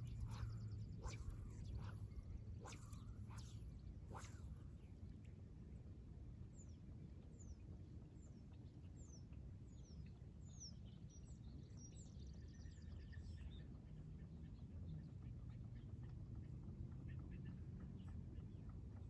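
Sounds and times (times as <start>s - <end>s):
bird singing whistles and chirps: 0.0s - 3.5s, 9.0s - 13.7s
low outdoor rumble: 0.0s - 6.6s.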